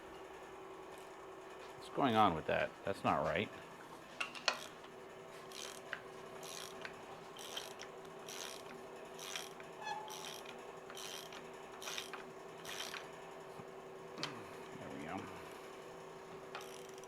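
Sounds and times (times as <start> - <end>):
hand ratchet clicking: 4.4 - 4.8, 5.5 - 13.1, 16.6 - 17.0.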